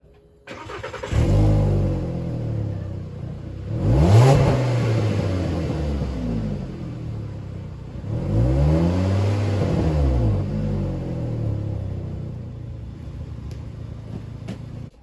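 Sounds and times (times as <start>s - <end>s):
loud car engine with leaking exhaust: 0.5s - 14.5s.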